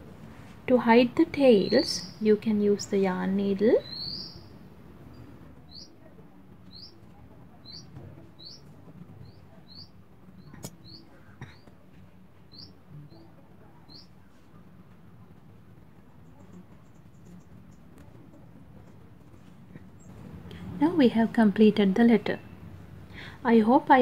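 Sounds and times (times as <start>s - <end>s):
bird chirping: 1.5s - 5.9s, 6.7s - 7.0s, 7.6s - 11.7s, 12.5s - 13.2s, 13.9s - 14.1s.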